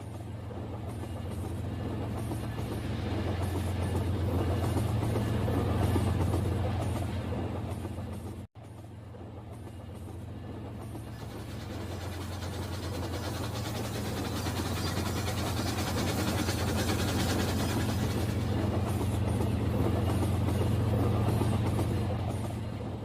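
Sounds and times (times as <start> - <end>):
toy train motor hum: 11.3 - 18.4.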